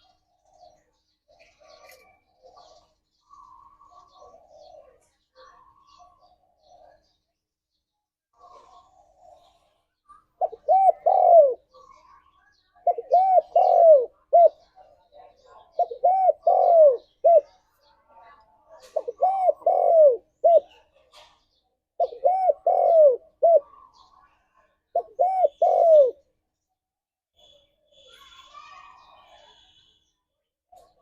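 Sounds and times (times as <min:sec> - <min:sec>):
dove cooing: 0:00.1 - 0:05.0, 0:08.4 - 0:09.7, 0:10.4 - 0:12.1, 0:12.8 - 0:14.7, 0:15.6 - 0:17.6, 0:18.8 - 0:20.9, 0:22.0 - 0:24.1, 0:24.9 - 0:26.2.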